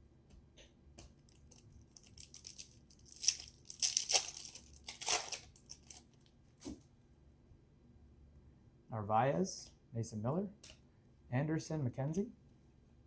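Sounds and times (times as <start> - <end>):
foil wrapper tearing and crinkling: 1.3 - 6.2.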